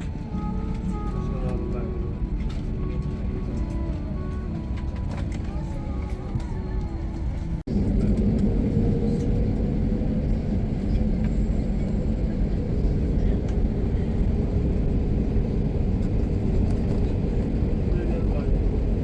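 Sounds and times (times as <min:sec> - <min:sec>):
engine low rumble: 0:00.0 - 0:19.0.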